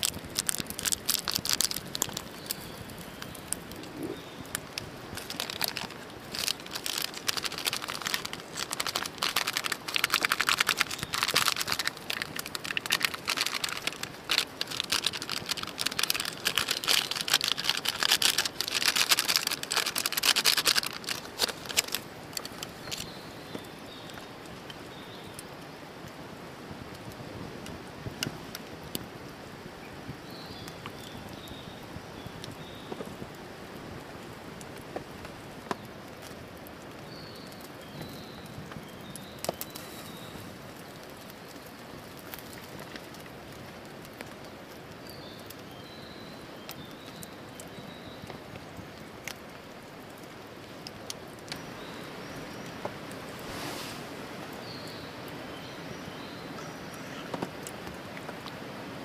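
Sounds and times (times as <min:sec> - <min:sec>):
campfire crackling and popping: 0:00.0 - 0:59.0
small bird chirping: 0:00.3 - 0:24.3.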